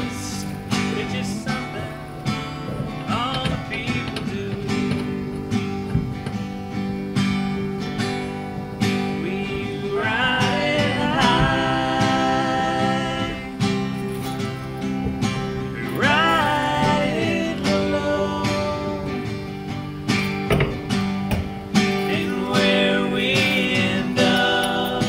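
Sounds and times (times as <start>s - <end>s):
person singing: 0.0s - 5.6s, 8.9s - 14.2s, 15.7s - 19.7s, 21.8s - 25.0s
acoustic guitar strumming: 0.0s - 25.0s.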